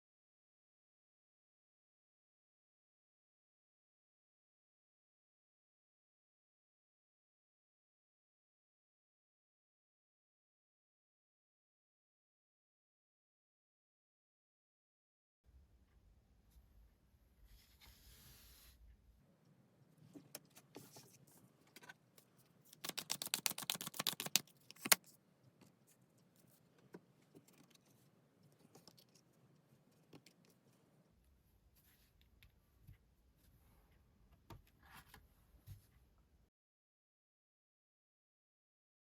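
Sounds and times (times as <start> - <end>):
cards fluttering: 22.7 - 25.1
cards clicking and rustling: 22.7 - 25.2
sharp card snap: 22.8 - 25.0.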